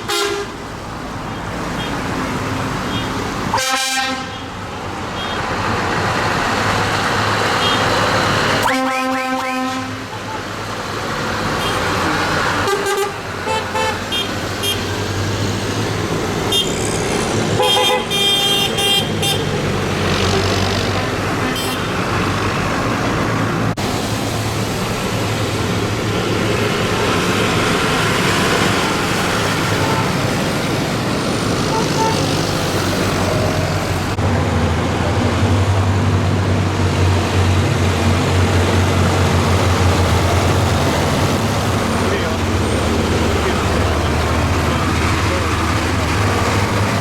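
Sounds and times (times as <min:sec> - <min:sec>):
horns tooting: 0:00.0 - 0:00.6, 0:02.9 - 0:04.6, 0:07.5 - 0:10.5, 0:11.6 - 0:15.0, 0:16.5 - 0:16.9, 0:17.5 - 0:19.6, 0:29.5 - 0:30.2, 0:31.6 - 0:32.4
tractor engines running: 0:10.2 - 0:47.0.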